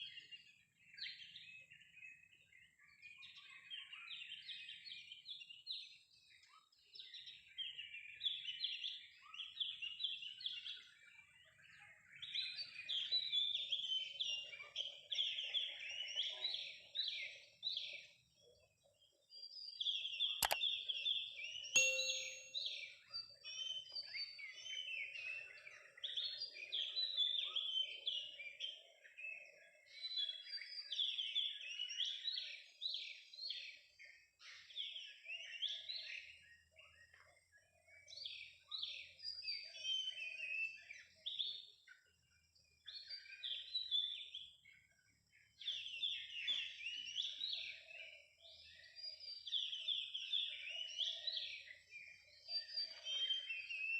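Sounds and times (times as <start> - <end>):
songbird chirping and whistling: 21.8 - 23.0, 48.6 - 53.9.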